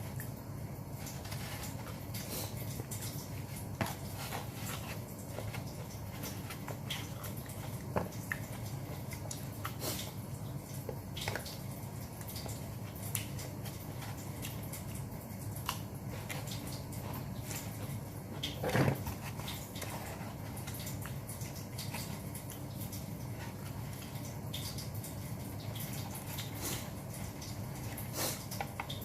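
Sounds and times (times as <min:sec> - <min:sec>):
low steady hum: 0:00.0 - 0:29.0
person chewing food: 0:01.0 - 0:10.2.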